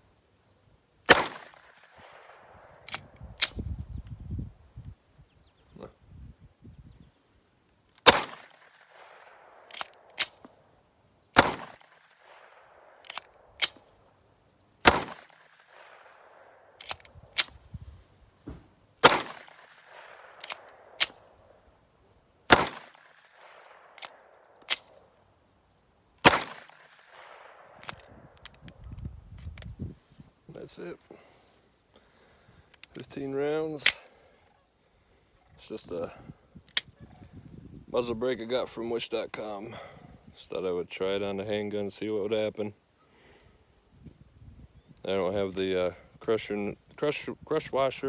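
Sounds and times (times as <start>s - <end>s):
handgun shots with echo: 1.1s - 2.3s, 8.0s - 10.4s, 11.4s - 12.0s, 14.8s - 16.0s, 19.0s - 21.2s, 22.5s - 24.9s, 26.2s - 28.0s.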